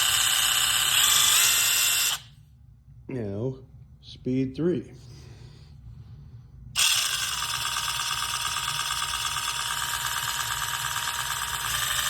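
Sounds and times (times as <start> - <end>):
impact driver motor whine: 0.0 - 2.3, 6.8 - 12.0.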